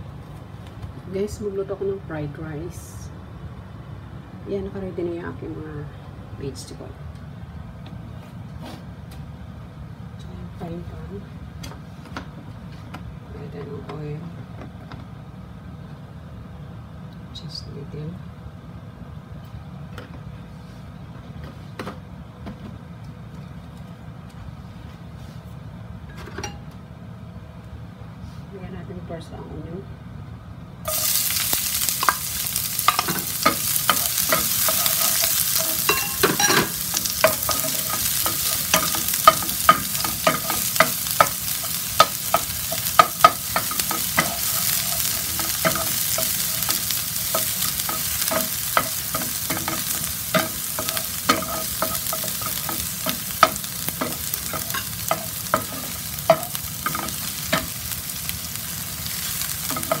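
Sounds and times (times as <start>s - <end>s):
onion sizzling in hot oil: 30.9s - 60.0s
wooden spoon scraping a pan: 32.0s - 57.7s.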